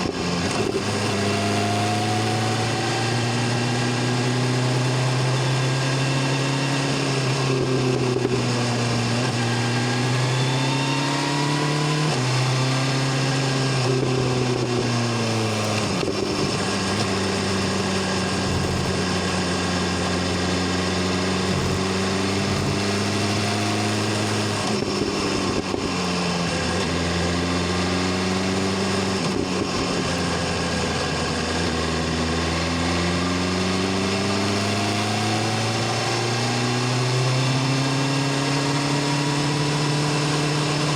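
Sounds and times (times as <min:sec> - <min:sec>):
motorcycle engine and exhaust: 0:00.0 - 0:40.9.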